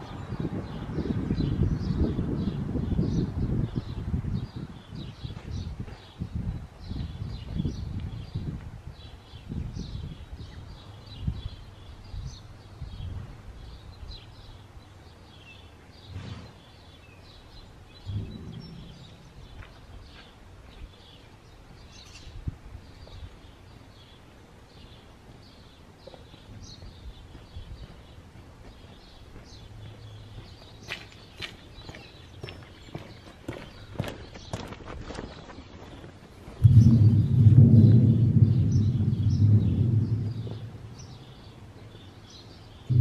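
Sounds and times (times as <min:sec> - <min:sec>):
birds chirping: 0:00.0 - 0:43.0
low steady rumble: 0:18.0 - 0:20.2, 0:36.6 - 0:43.0.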